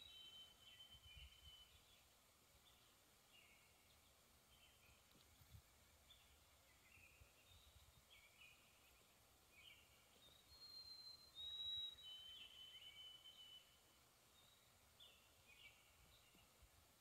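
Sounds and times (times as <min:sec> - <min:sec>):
bird whistled notes: 0:00.0 - 0:01.8, 0:10.3 - 0:13.8
songbirds chirping: 0:00.0 - 0:17.0.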